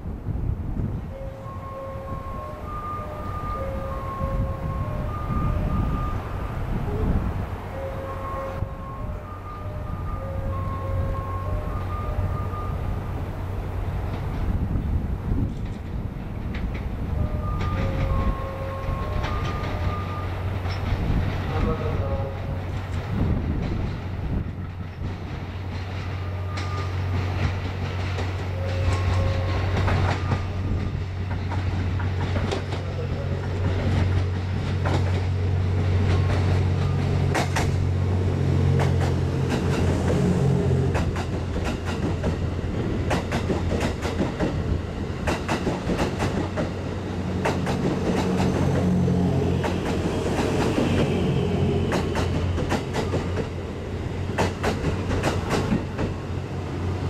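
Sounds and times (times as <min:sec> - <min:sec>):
low train engine hum: 0:00.0 - 0:57.0
wheels clicking over rail joints: 0:14.0 - 0:38.0, 0:38.7 - 0:57.0.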